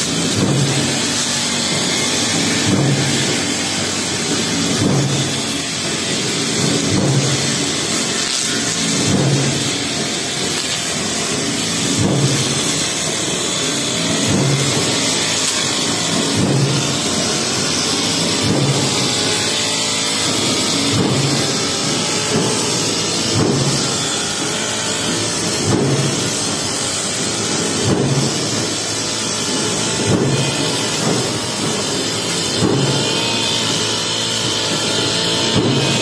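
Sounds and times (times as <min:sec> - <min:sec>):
brush cutter engine under load: 0:00.0 - 0:36.0
blade sweeping through grass: 0:06.7 - 0:11.4.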